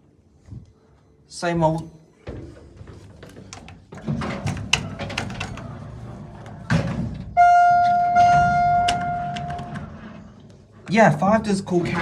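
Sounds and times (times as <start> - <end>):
lift doors sliding with rattle: 2.3 - 12.0
lift door thud: 4.0 - 10.4.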